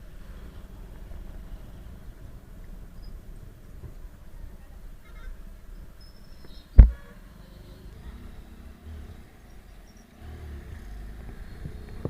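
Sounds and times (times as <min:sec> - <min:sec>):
motorcycle engine and road rumble: 0:00.0 - 0:12.0
sharp loud thump: 0:06.8 - 0:07.0.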